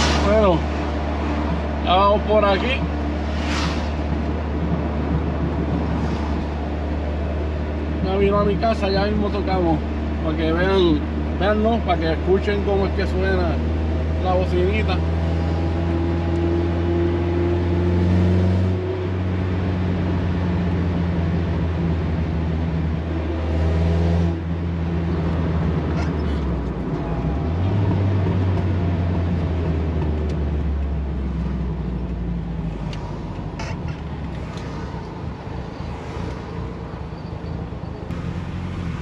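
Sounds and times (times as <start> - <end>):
road noise: 0.0 - 39.0
car engine revving: 38.1 - 39.0.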